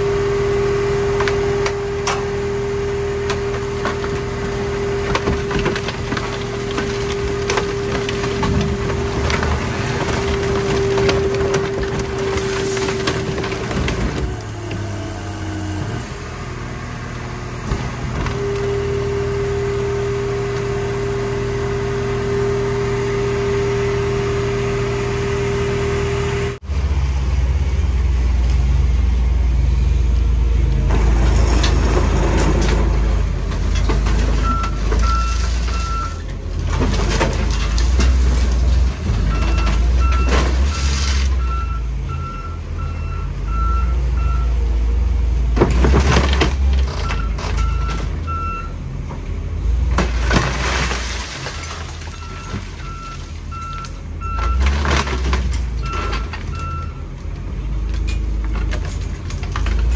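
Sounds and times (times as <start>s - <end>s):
diesel machinery rumbling: 0.0s - 59.9s.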